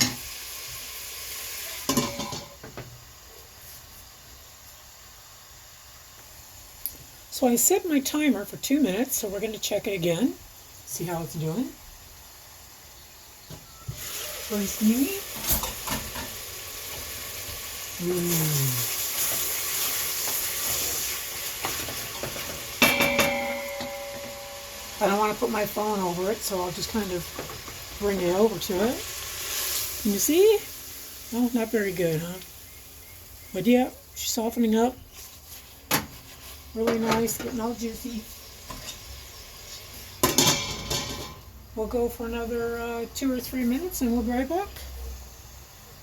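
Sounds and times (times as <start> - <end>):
bacon sizzling in a pot: 0.0 - 46.0
short ringing tone: 22.9 - 25.0.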